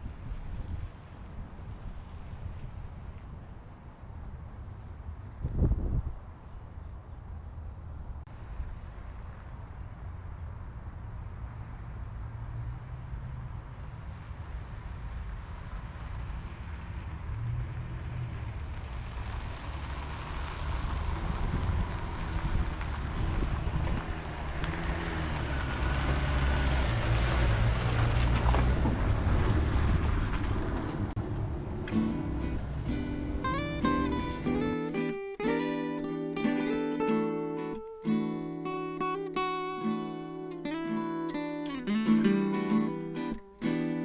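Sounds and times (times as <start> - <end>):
road and wind noise: 0.0 - 44.0
truck engine running: 31.2 - 35.2.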